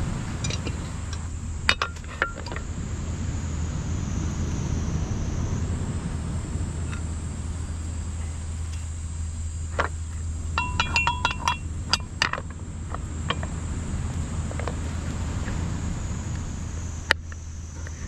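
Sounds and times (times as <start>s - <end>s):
high insect drone: 0.0s - 18.0s
steady low hum: 0.0s - 18.0s
hard objects clinking together: 10.6s - 12.5s.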